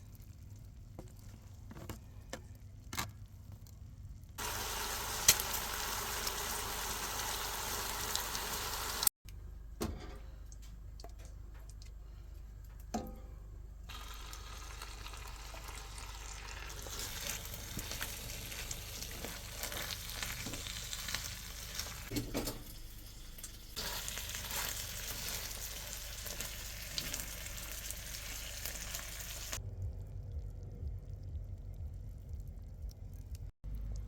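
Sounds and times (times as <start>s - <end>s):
ribs sizzling in a pan: 4.4s - 9.1s, 13.9s - 29.6s.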